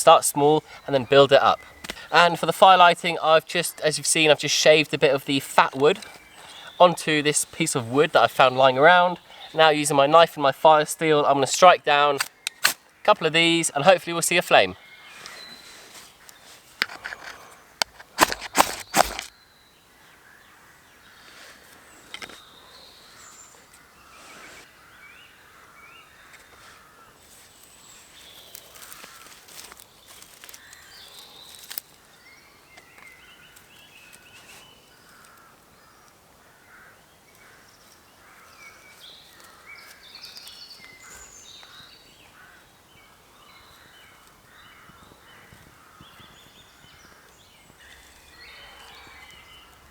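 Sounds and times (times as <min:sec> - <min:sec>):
birds calling in woodland: 0:00.0 - 0:49.9
knife scraping fire steel: 0:16.8 - 0:19.3.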